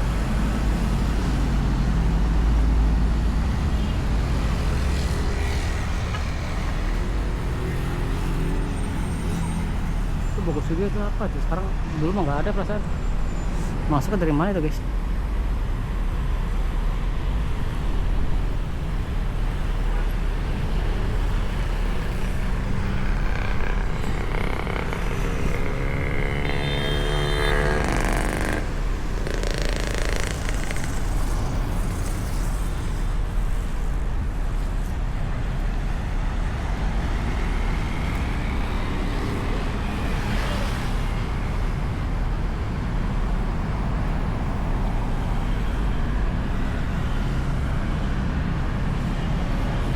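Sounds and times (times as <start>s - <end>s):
road traffic rumble: 0.0s - 49.9s
passing vehicle engine: 18.4s - 34.2s.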